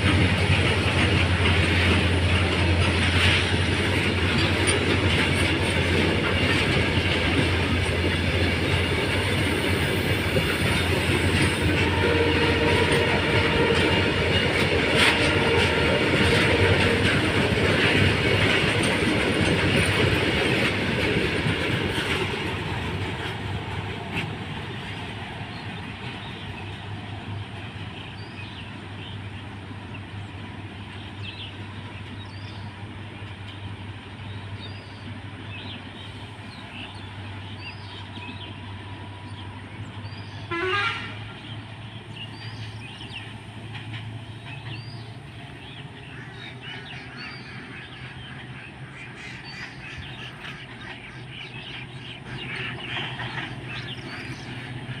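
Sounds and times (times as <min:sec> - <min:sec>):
diesel train engine hum: 0:00.0 - 0:55.0
rail noise from wagons: 0:00.0 - 0:55.0
train horn toot: 0:11.3 - 0:17.4, 0:40.4 - 0:41.4
birds chirping: 0:24.0 - 0:40.5, 0:41.1 - 0:55.0.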